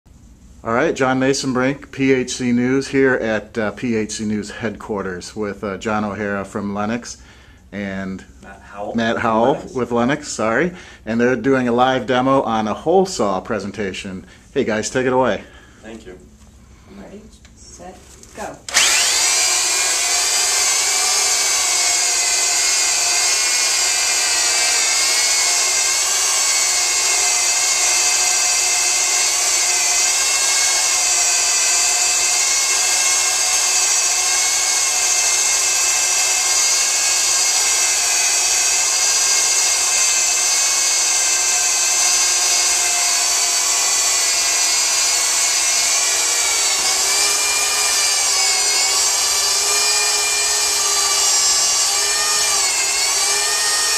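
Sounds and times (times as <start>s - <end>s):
drills whining: 18.6s - 53.9s
hole saw cutting wood: 18.7s - 53.9s.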